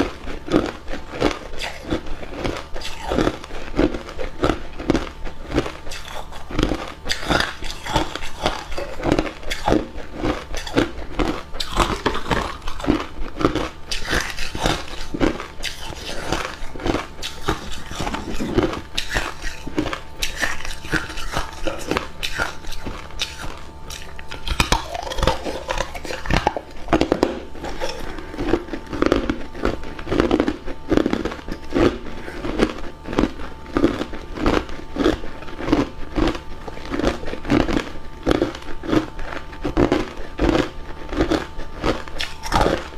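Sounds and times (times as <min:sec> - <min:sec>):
ice being chewed: 0:00.0 - 0:42.9.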